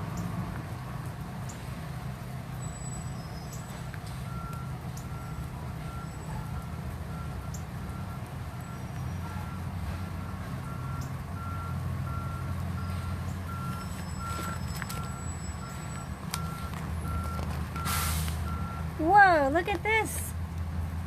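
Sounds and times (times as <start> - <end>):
reversing alarm beeping: 4.2 - 18.9.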